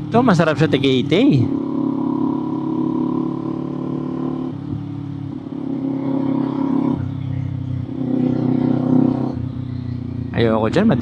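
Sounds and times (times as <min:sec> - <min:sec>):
motorcycle engine and exhaust: 0:00.0 - 0:11.0.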